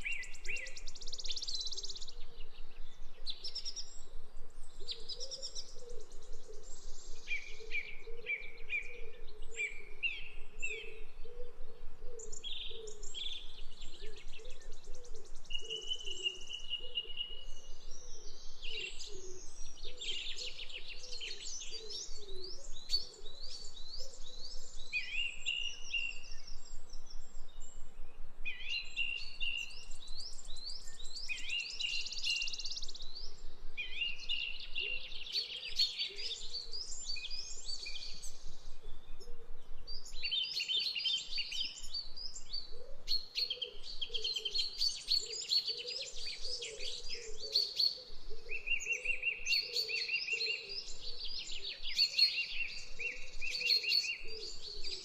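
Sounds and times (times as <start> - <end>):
faint low repeated bird call: 0.0 - 55.0
small birds chirping and trilling: 12.2 - 55.0.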